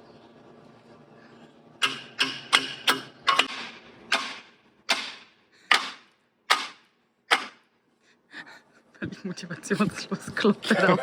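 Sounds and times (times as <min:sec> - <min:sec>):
hammer striking a pipe: 0:01.8 - 0:07.6.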